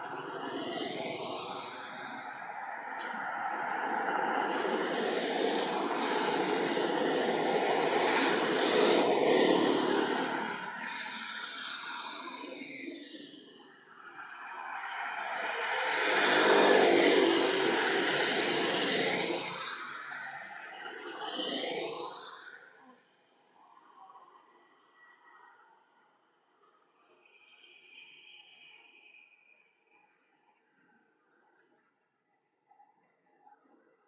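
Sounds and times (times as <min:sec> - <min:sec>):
loud rushing noise: 0:00.0 - 0:13.1, 0:14.2 - 0:22.5
bird chirping: 0:25.0 - 0:31.8.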